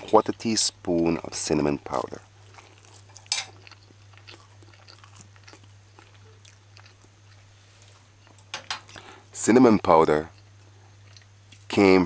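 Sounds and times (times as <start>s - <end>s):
steady low hum: 0.0s - 12.0s
person chewing: 1.8s - 9.2s, 10.3s - 11.7s.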